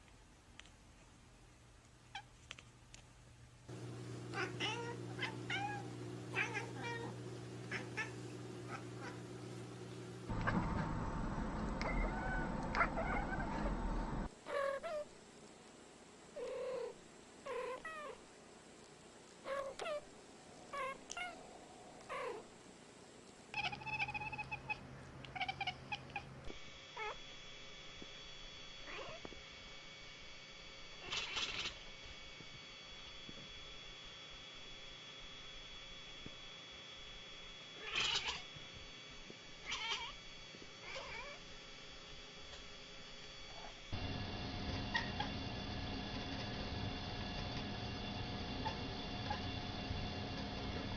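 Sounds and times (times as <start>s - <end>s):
cat chirping calls: 4.3s - 9.2s, 11.8s - 13.8s, 19.4s - 20.1s, 20.7s - 22.5s, 23.5s - 26.4s, 31.0s - 31.8s, 37.8s - 38.4s, 39.6s - 40.2s, 40.8s - 41.4s
cat meowing: 4.3s - 9.2s, 11.8s - 13.8s, 19.5s - 20.0s, 20.7s - 21.4s, 22.0s - 22.4s, 23.5s - 26.3s, 31.0s - 31.7s, 37.8s - 38.4s, 39.6s - 40.2s, 40.8s - 41.4s.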